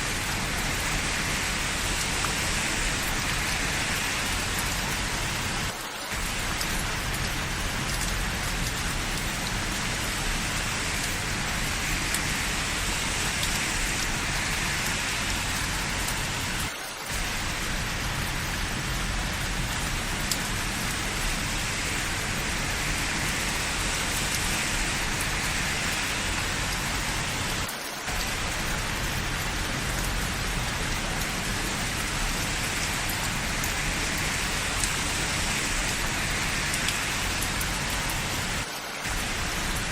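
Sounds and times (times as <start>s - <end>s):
dense rain falling: 0.0s - 39.9s.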